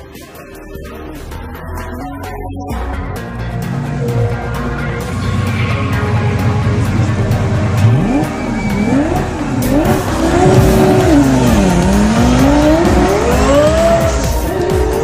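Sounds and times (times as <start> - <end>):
sports car engine revving: 3.6 - 15.0.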